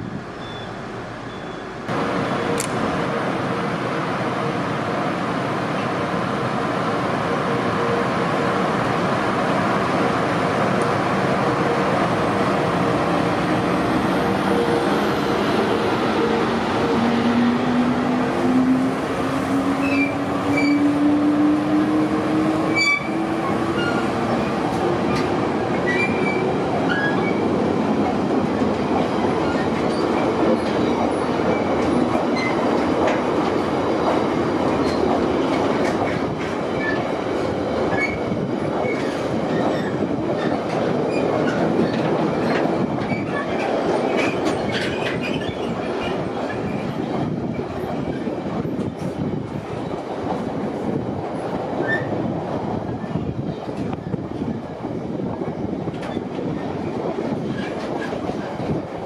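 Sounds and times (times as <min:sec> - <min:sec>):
train wheels rumbling on rail: 0:00.0 - 0:59.0
high wheel squeals: 0:00.4 - 0:01.7.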